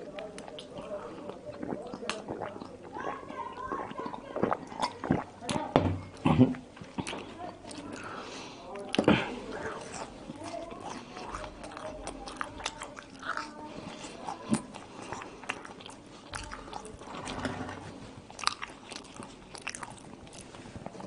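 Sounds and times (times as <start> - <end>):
wet mouth clicks: 1.5 - 2.7, 3.8 - 5.6
crunching bites of fries: 8.8 - 17.4, 18.3 - 21.0.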